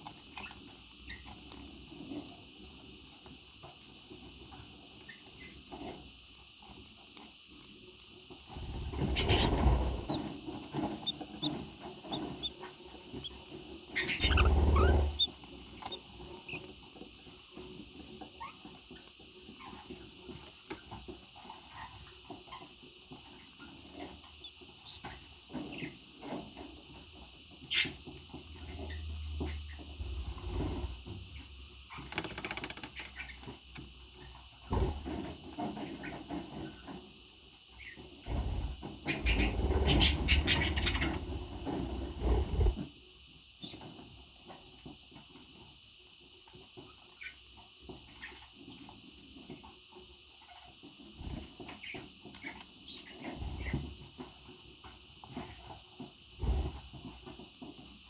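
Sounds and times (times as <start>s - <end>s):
parrot chirping and squeaking: 9.0s - 16.7s, 39.1s - 41.2s.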